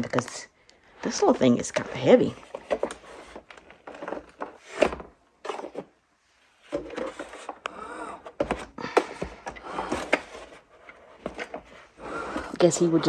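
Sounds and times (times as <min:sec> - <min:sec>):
handling knocks and clicks: 0:08.3 - 0:13.0.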